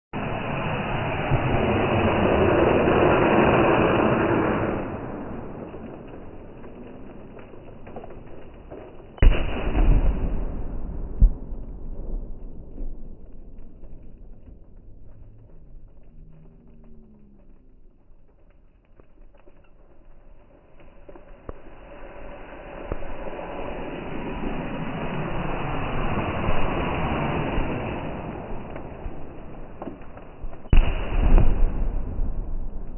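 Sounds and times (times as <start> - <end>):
low rumble: 0.1 - 32.9
firework rushing hiss: 0.2 - 7.1, 21.2 - 32.8
faint firework crackles: 0.2 - 32.9
firework bang: 8.7 - 14.7, 21.4 - 32.9.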